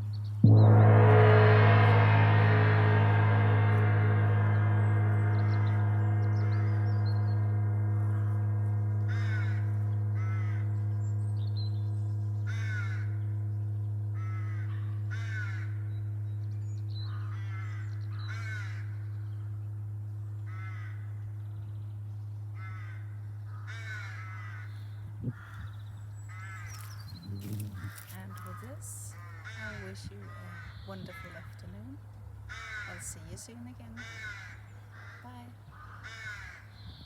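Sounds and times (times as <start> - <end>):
large gong ringing: 0.4 - 22.6, 26.7 - 31.3
crows cawing: 9.1 - 9.6, 12.5 - 13.1, 14.2 - 15.8, 17.1 - 18.9, 20.5 - 21.1, 22.6 - 24.8, 26.3 - 31.5, 32.5 - 33.1, 34.0 - 36.8.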